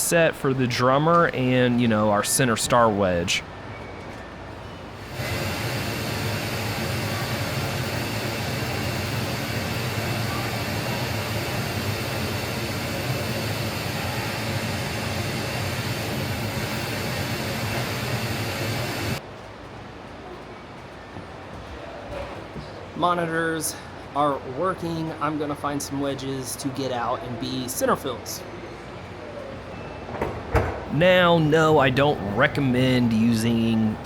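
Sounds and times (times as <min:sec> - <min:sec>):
pink noise hiss from speakers: 0:00.0 - 0:03.4, 0:05.0 - 0:19.2, 0:30.9 - 0:34.0.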